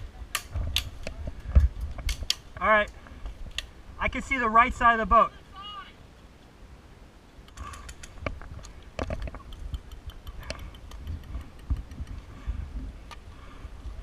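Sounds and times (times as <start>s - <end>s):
handling and wind rumble: 0.0s - 14.0s.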